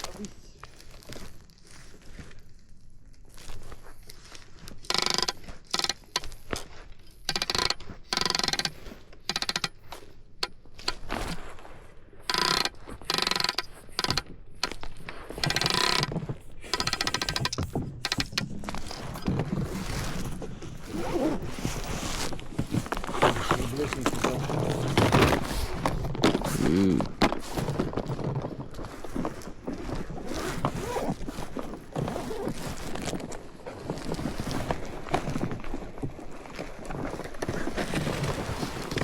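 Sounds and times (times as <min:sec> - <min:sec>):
fishing reel clicking: 0:04.9 - 0:06.3, 0:07.3 - 0:09.8, 0:12.3 - 0:14.8, 0:15.4 - 0:19.0.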